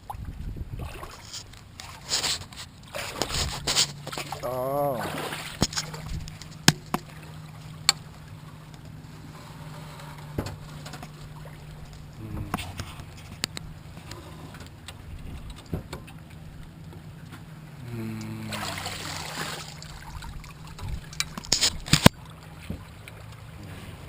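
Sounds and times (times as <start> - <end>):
steady low hum: 5.8 - 23.9.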